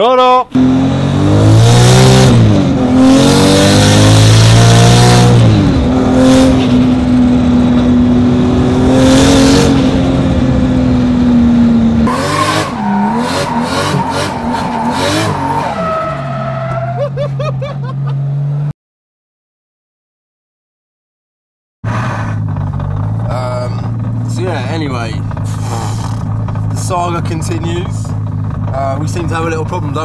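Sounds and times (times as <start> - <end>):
car engine revving hard: 0.6 - 16.6.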